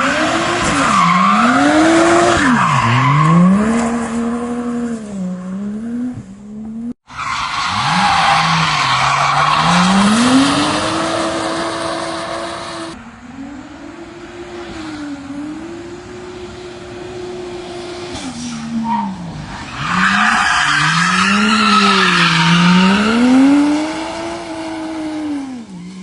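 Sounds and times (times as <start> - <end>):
car engine revving: 0.0 - 18.3.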